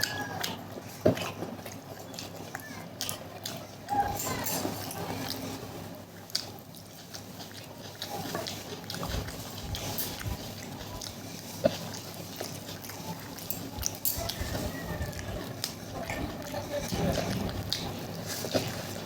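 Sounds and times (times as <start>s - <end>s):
person chewing food: 0.0s - 19.0s
wet mouth clicks and smacks: 6.3s - 16.0s.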